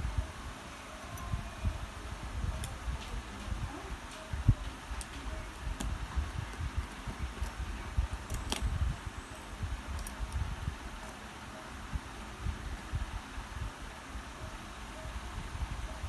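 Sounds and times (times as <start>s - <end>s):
low rumble of handling: 1.0s - 11.2s.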